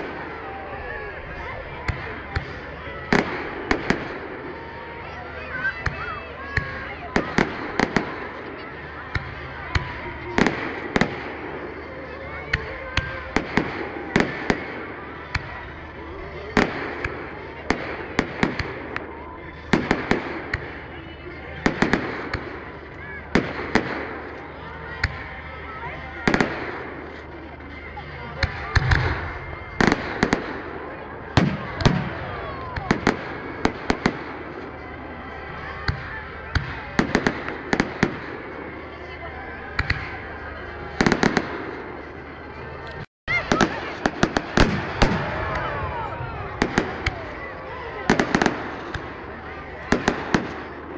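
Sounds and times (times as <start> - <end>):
murmur of voices: 0.0 - 50.9
steady background noise: 0.0 - 50.9.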